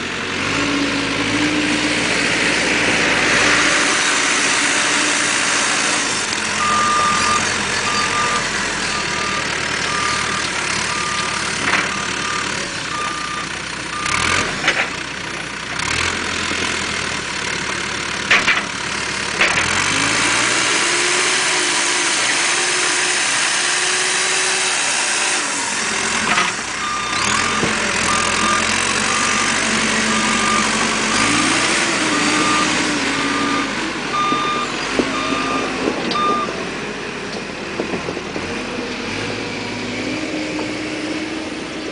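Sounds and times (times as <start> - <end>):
diesel engine running: 0.0 - 41.9
reversing alarm beeping: 6.6 - 14.3, 26.8 - 36.6.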